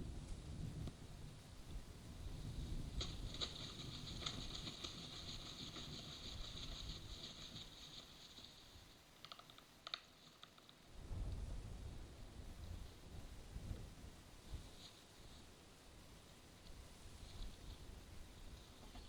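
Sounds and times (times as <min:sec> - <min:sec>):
rapid high ticking chatter: 0:03.0 - 0:10.0
rain: 0:03.0 - 0:13.4
thunderstorm wind: 0:11.0 - 0:14.2.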